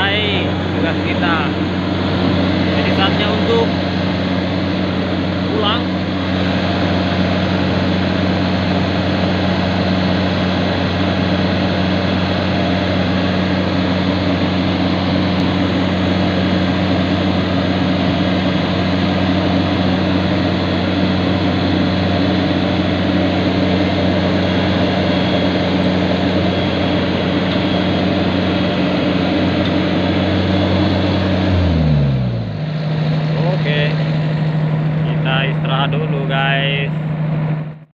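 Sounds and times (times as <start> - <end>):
diesel engine running at high revs: 0.0 - 37.9.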